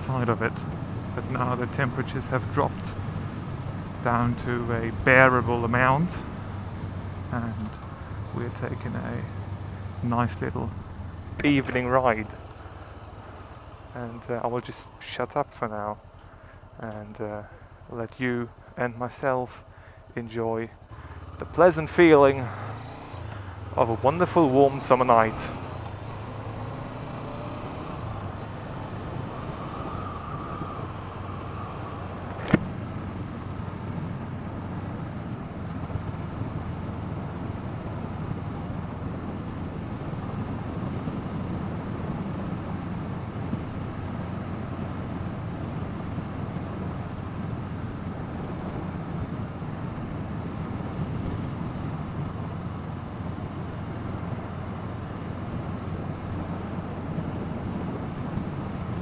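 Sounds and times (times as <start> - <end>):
motorcycle engine running: 0.3 - 14.0, 20.8 - 59.0
wind rushing over microphone: 24.6 - 59.0
sharp click: 32.3 - 32.7.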